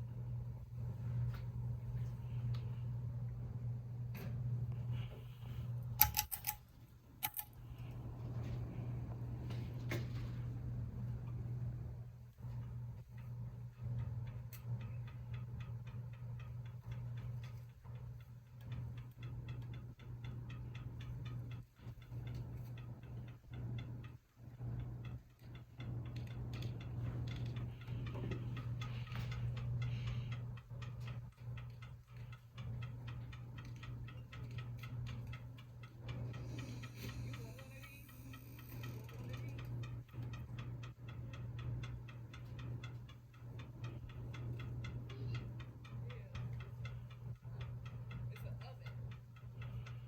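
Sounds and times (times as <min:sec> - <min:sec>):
ceiling fan motor humming: 0:00.0 - 0:50.0
fan ticking: 0:00.0 - 0:50.0.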